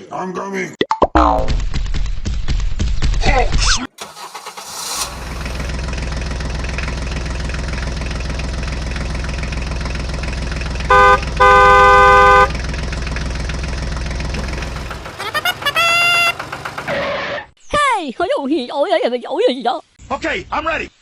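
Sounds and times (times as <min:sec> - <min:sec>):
tractor engine droning: 0:04.0 - 0:17.3
vehicle horn toots: 0:10.8 - 0:12.6.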